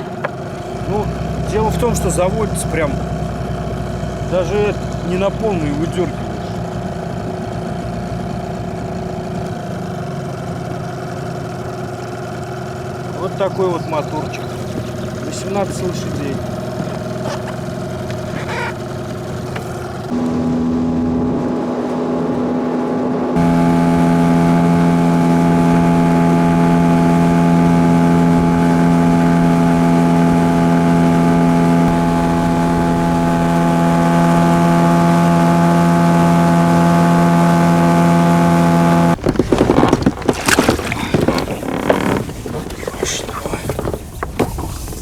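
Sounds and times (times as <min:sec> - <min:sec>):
outboard motor running: 0:00.0 - 0:45.0.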